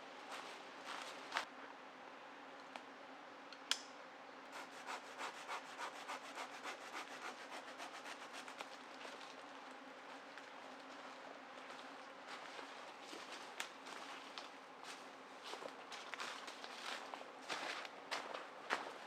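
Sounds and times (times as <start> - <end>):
sharp click: 3.5 - 4.0
hand saw cutting wood: 4.6 - 8.7.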